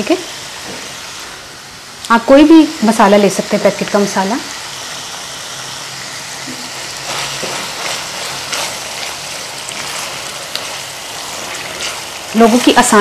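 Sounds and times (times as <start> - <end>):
liver sizzling in oil: 0.0 - 13.0
spatula stirring in a pot: 6.5 - 13.0.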